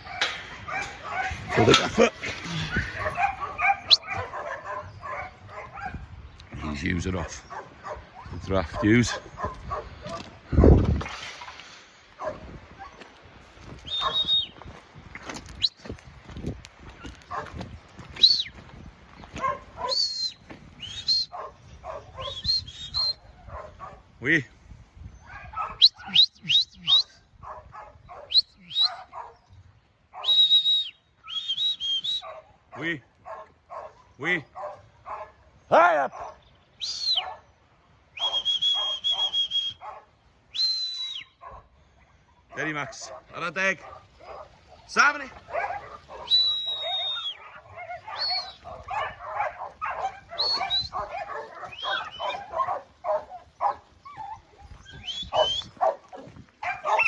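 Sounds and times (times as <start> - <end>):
dog barking: 0.0 - 6.1, 7.2 - 10.8, 12.2 - 13.1, 14.0 - 14.3, 17.3 - 17.6, 19.4 - 20.1, 21.3 - 22.5, 23.1 - 24.1, 25.2 - 26.2, 27.4 - 29.4, 30.1 - 30.4, 32.2 - 36.4, 37.1 - 37.6, 38.2 - 40.2, 41.4 - 41.8, 42.4 - 57.0
person whistling commands: 13.8 - 14.6, 18.2 - 18.5, 20.0 - 21.3, 22.2 - 23.2, 25.8 - 27.2, 28.3 - 29.0, 30.2 - 32.3, 36.8 - 37.3, 38.2 - 39.8, 40.5 - 41.4, 46.2 - 47.4, 50.4 - 51.0, 54.9 - 55.8.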